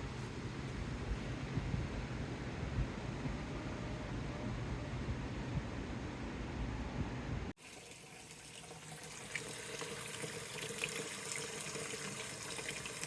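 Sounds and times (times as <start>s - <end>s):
low rumble of outdoor air: 0.0s - 7.6s
tap running water into sink: 7.6s - 13.0s.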